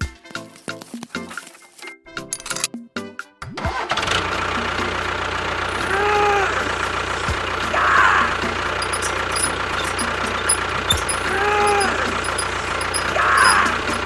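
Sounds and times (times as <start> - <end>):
music: 0.0 - 8.7
small tractor motor running: 4.0 - 14.0.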